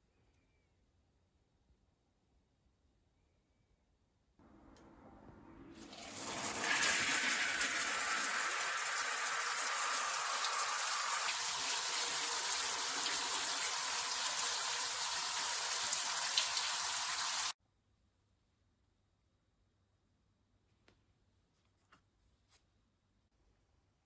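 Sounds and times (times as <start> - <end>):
tap water running into sink: 5.8 - 17.6.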